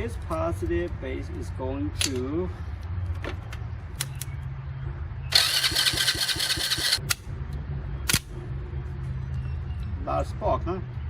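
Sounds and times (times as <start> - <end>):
electric starter cranking engine: 5.3 - 7.0.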